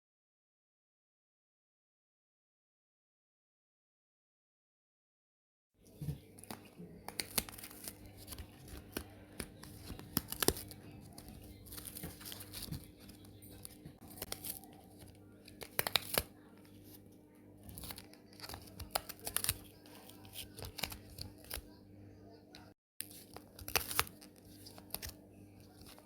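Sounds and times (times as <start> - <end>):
crinkling and crunching: 5.9 - 17.0, 17.6 - 21.6, 23.0 - 26.0.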